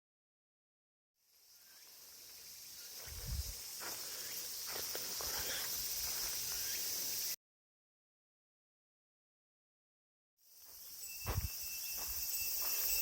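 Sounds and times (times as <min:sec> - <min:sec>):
insects chorus: 0:01.2 - 0:07.4, 0:10.4 - 0:13.0
soft footsteps or thumps: 0:11.2 - 0:12.8.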